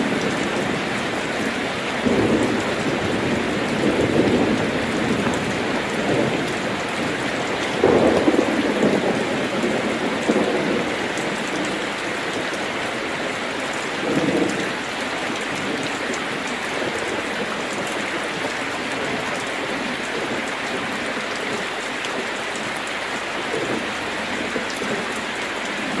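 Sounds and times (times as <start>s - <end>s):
low thunder rumbles: 0.0s - 21.6s
heavy rain on a metal roof: 0.0s - 26.0s.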